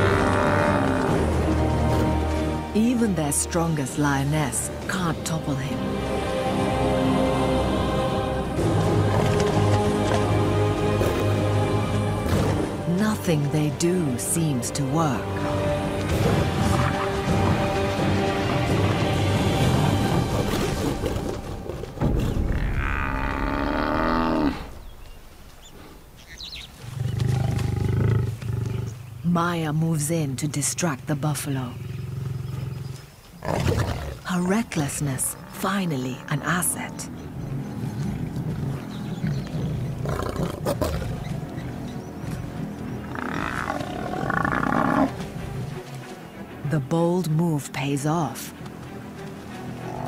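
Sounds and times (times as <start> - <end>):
buffalo bellowing: 0.0 - 1.4, 43.0 - 45.2
lions growling and snarling: 26.8 - 29.1, 31.6 - 45.6.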